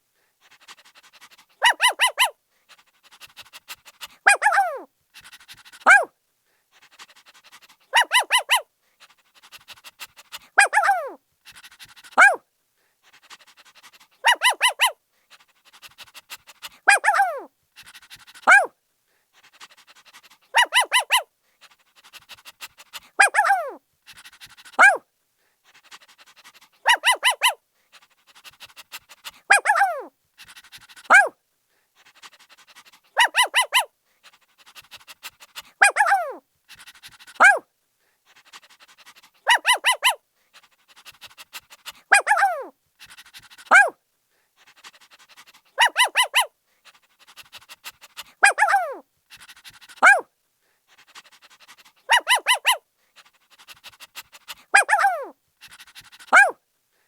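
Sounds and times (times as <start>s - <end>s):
puppy barking and yelping: 0.6s - 2.4s, 3.1s - 6.1s, 6.9s - 8.7s, 9.4s - 12.4s, 13.2s - 18.7s, 19.8s - 25.0s, 25.8s - 31.3s, 32.1s - 37.7s, 38.3s - 44.0s, 45.2s - 46.6s, 47.3s - 50.3s, 51.2s - 52.8s, 53.5s - 56.6s.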